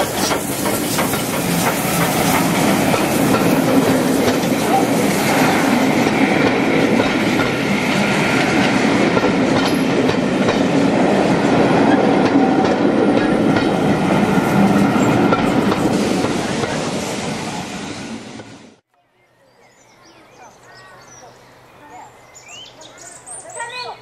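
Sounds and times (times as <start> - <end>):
train wheels clicking over rail joints: 0.0 - 11.0, 11.7 - 14.0, 14.6 - 16.8.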